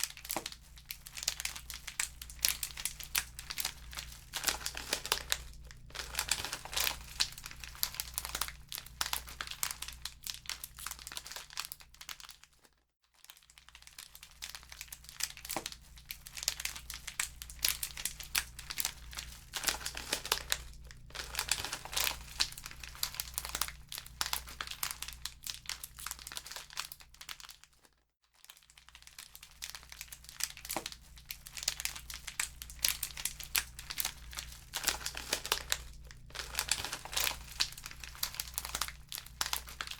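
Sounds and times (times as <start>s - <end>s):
wood fire crackling in fireplace: 0.1s - 10.5s, 16.4s - 26.3s, 29.6s - 39.9s.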